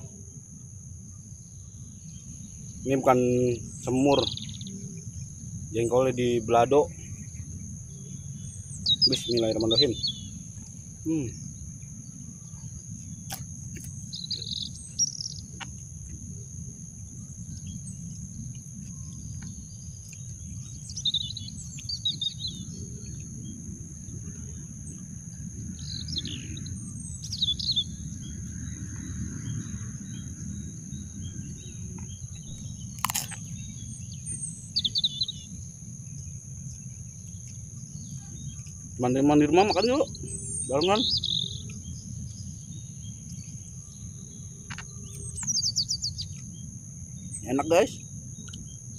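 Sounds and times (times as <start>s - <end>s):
birds chirping: 0.0s - 48.9s
low outdoor rumble: 0.0s - 48.9s.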